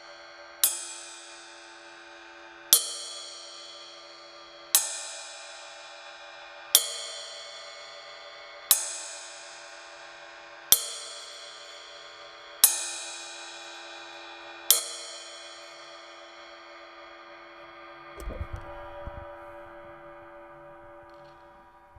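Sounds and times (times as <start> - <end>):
ride cymbal struck with drumstick: 6.8 - 16.5.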